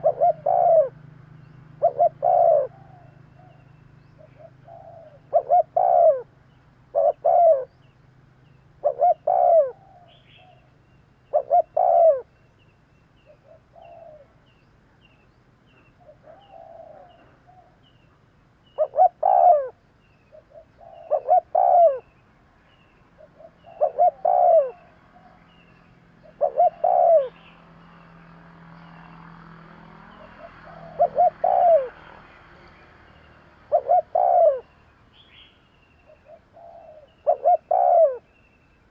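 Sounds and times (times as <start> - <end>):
dove cooing: 0.0 - 7.9, 8.8 - 10.7, 11.3 - 12.3, 13.2 - 14.5, 16.0 - 22.1, 22.8 - 27.6, 30.1 - 35.4, 36.0 - 38.3
small bird chirping: 0.0 - 29.3, 30.0 - 38.9.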